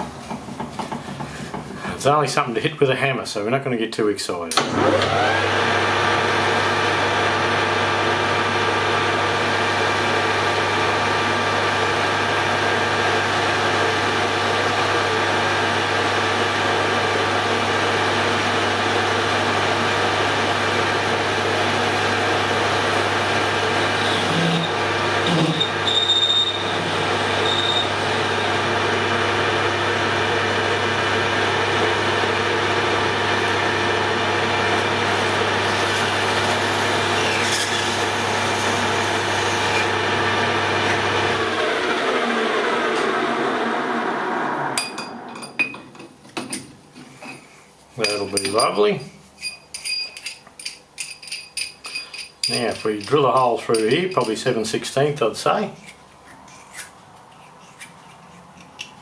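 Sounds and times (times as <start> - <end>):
metal lathe cutting steel: 4.6 - 45.5
short high squeal: 25.4 - 26.8, 27.4 - 28.0.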